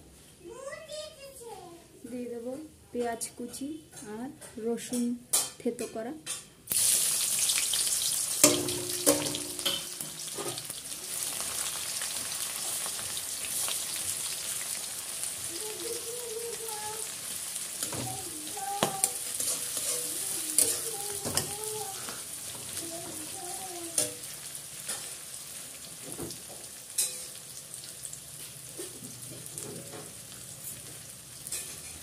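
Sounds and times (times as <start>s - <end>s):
onion and garlic sizzling in oil: 6.7s - 32.0s
spatula scraping a pan: 17.8s - 23.4s.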